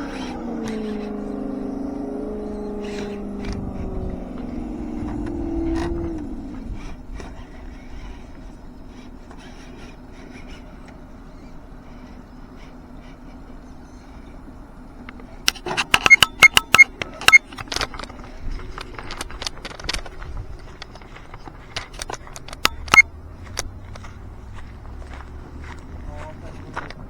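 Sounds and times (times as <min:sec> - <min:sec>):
rc truck clattering over rocks: 0:00.0 - 0:01.8, 0:02.8 - 0:27.0
faint steady hum: 0:00.0 - 0:27.0.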